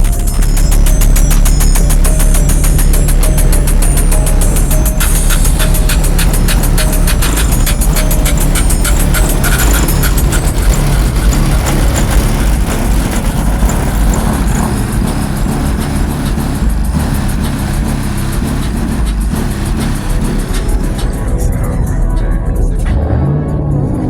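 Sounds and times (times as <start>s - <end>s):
car engines and exhausts: 0.0s - 24.0s
music: 0.0s - 24.0s.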